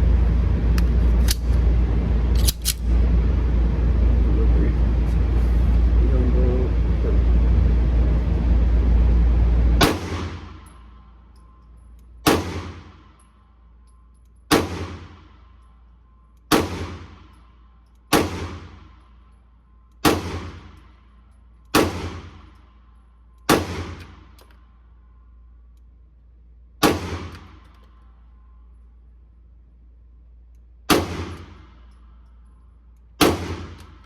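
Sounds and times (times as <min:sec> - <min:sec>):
pistol shots echoing indoors: 0:09.8 - 0:11.1, 0:12.0 - 0:13.5, 0:14.1 - 0:25.8, 0:26.7 - 0:29.0, 0:30.3 - 0:34.0.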